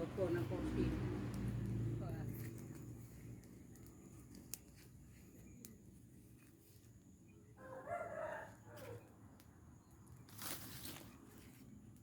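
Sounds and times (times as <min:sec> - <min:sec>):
rooster crowing: 0:07.6 - 0:09.1.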